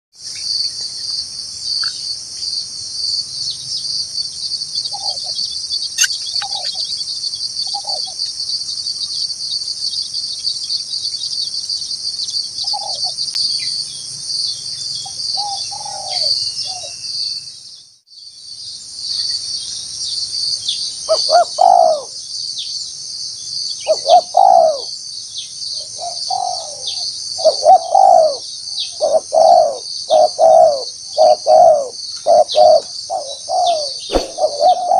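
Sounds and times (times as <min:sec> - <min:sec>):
high insect chorus: 0:00.2 - 0:34.9
doves cooing: 0:15.4 - 0:16.4, 0:21.1 - 0:22.2, 0:23.9 - 0:24.9, 0:26.0 - 0:28.4, 0:29.0 - 0:34.9.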